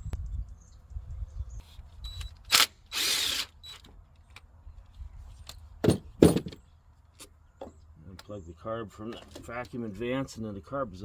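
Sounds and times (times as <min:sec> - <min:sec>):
cordless drill spinning: 0:02.0 - 0:03.8.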